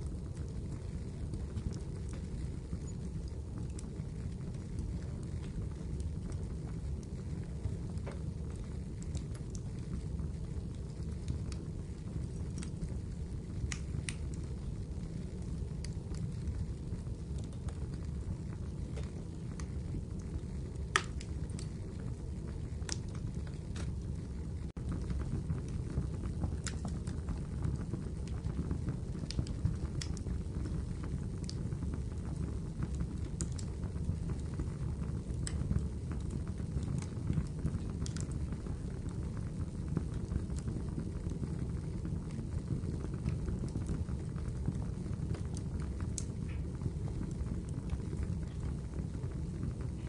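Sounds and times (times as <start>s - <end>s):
wood fire crackling: 0.0s - 50.0s.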